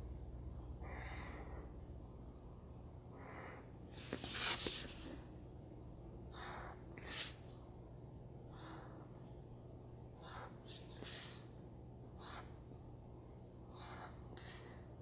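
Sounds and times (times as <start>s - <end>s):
pen strokes on paper: 4.0s - 5.0s.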